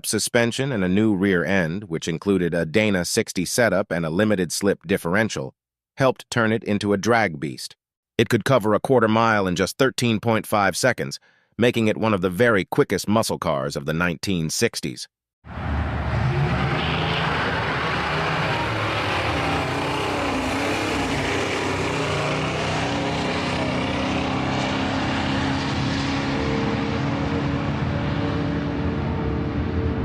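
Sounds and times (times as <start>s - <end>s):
car engine loud exhaust note: 15.5s - 30.0s.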